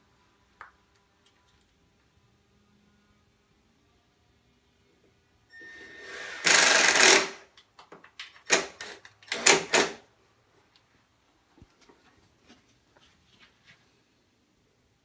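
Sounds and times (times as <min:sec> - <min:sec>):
cordless drill driving a screw: 0:05.7 - 0:07.4.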